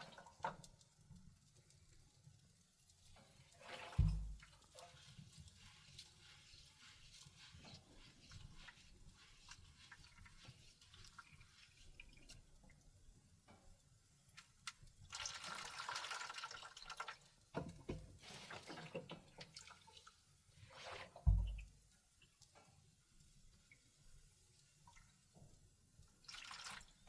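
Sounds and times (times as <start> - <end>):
water dripping and trickling: 0.0 - 27.0
low thump: 4.0 - 4.4, 21.3 - 21.6.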